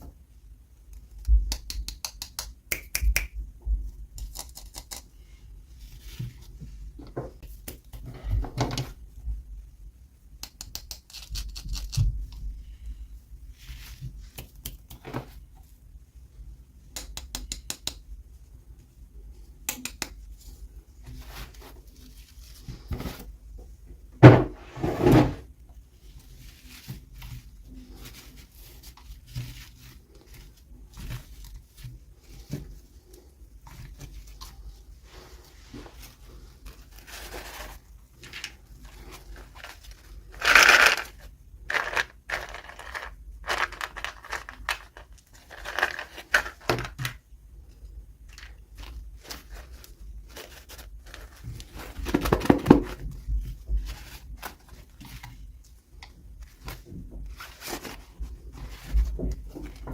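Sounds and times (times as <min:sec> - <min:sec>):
small clicks and taps: 0:00.9 - 0:05.1, 0:16.9 - 0:18.0
packaging rustling and tearing: 0:36.7 - 0:47.0.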